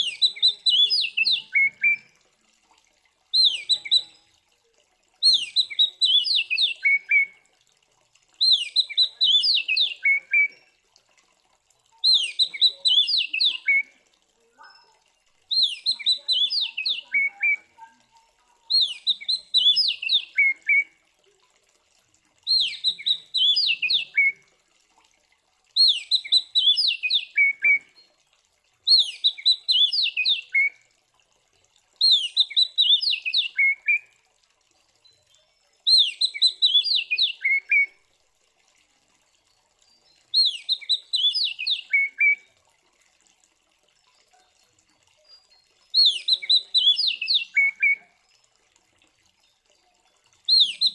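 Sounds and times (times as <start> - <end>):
bird singing downward phrases: 0.0 - 2.1, 3.3 - 4.3, 5.2 - 7.4, 8.4 - 10.7, 12.0 - 13.9, 14.6 - 20.9, 22.4 - 24.4, 25.8 - 28.1, 28.9 - 30.8, 32.0 - 34.2, 35.0 - 37.9, 40.0 - 42.5, 45.2 - 48.2, 50.4 - 50.9.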